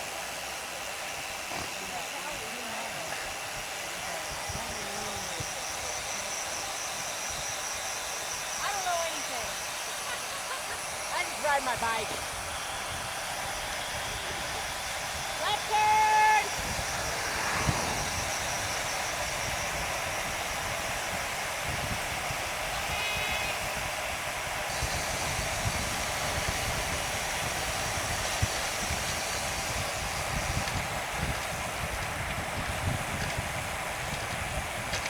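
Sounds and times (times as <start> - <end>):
road bike tyre hiss: 9.8 - 35.0
wind buffeting microphone: 11.7 - 35.0.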